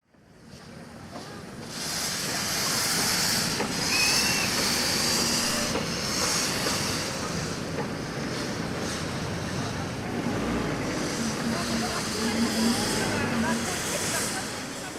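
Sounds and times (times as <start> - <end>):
steam train hissing: 0.3 - 14.9
brief high squeal: 3.8 - 5.8.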